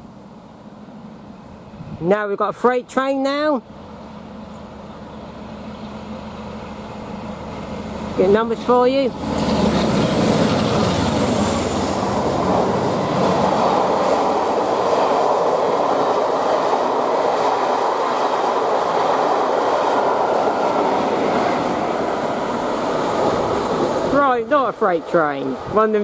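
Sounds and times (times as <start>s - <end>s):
train wheels rushing on rails: 3.4s - 26.0s
clickety-clack over rail joints: 7.5s - 12.5s, 13.1s - 25.6s.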